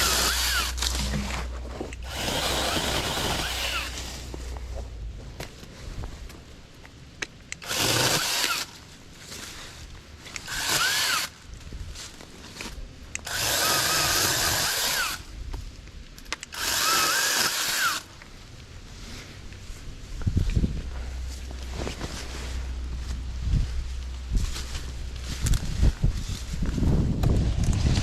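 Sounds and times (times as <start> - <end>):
mini chainsaw motor whining: 0.0 - 0.8, 2.0 - 4.0, 10.4 - 11.3, 13.2 - 15.2, 16.6 - 18.0.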